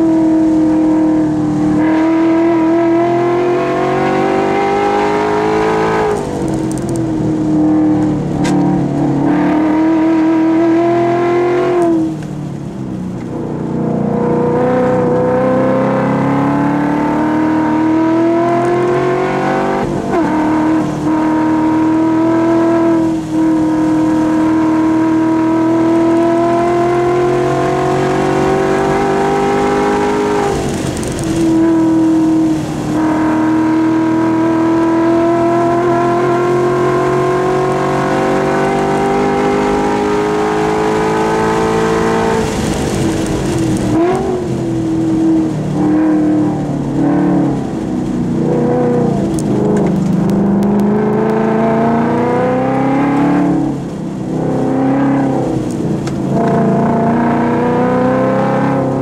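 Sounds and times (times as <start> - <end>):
car engine accelerating hard: 0.0 - 59.0.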